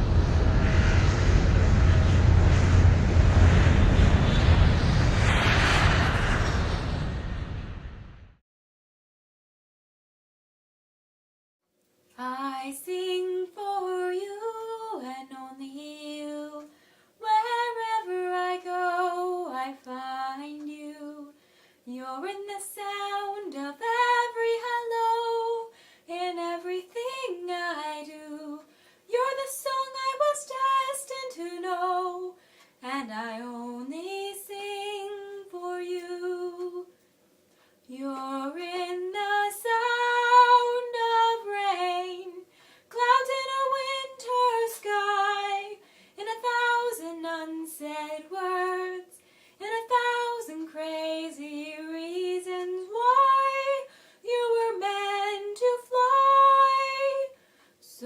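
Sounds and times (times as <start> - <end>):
woman singing a slow ballad: 12.2 - 36.9, 37.9 - 58.0.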